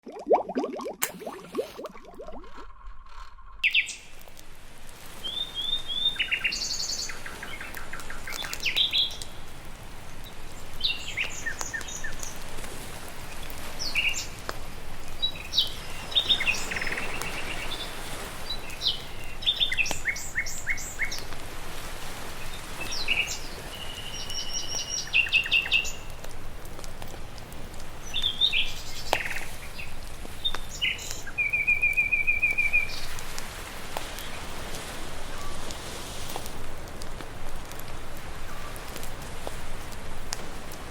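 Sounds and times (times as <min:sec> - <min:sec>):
songbirds chirping and trilling: 0:02.6 - 0:04.2.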